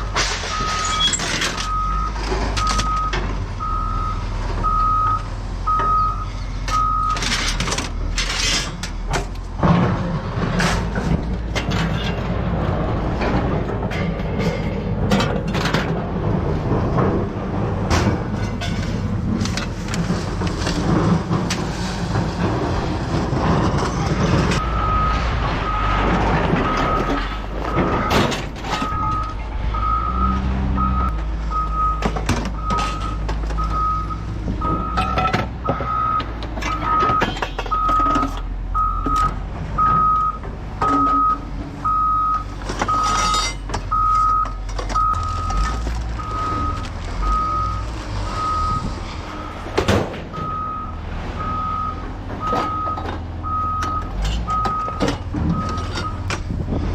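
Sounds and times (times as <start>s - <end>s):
diesel engine running: 0.0s - 56.9s
reversing alarm beeping: 0.5s - 7.3s, 24.6s - 25.9s, 26.6s - 28.1s, 28.7s - 48.9s, 50.3s - 56.2s
metal clanks: 13.1s - 16.1s, 16.7s - 22.7s, 42.4s - 46.0s.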